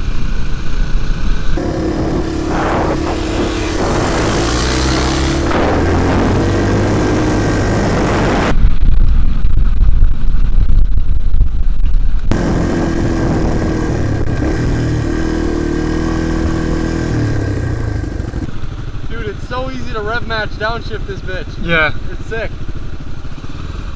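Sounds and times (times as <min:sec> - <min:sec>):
dirt bike engine revving: 0:01.6 - 0:08.5, 0:12.3 - 0:18.5
muffled low rumble: 0:01.6 - 0:08.5.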